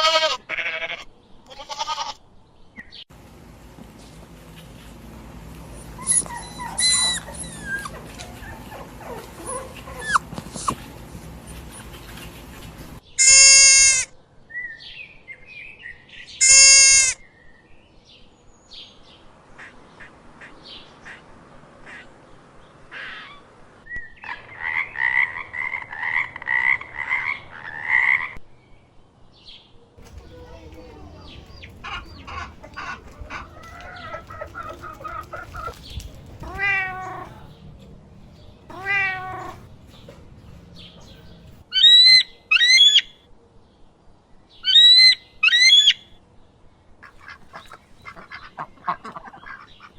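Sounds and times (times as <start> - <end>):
loud steady animal calls: 4.8 - 14.1, 30.0 - 43.1, 44.6 - 46.0
quick repeated animal calls: 30.0 - 37.5.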